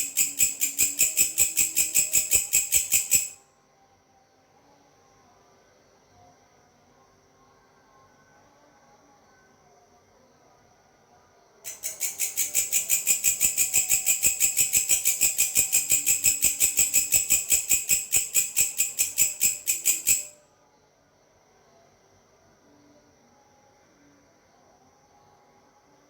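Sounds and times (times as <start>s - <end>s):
grasshopper stridulating: 0.0s - 3.4s, 11.7s - 20.4s
faint background insects: 0.0s - 26.0s.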